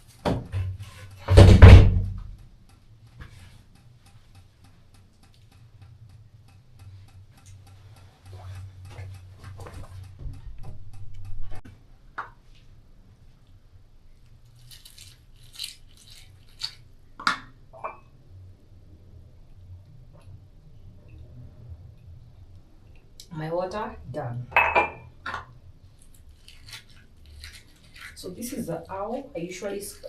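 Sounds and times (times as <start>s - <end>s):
steady low hum: 0.0s - 30.0s
sharp clicks and knocks: 0.2s - 12.4s
faint regular ticking: 2.3s - 11.4s.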